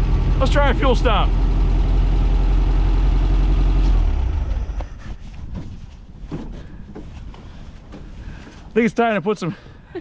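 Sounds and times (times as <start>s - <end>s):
engine running: 0.0s - 5.6s.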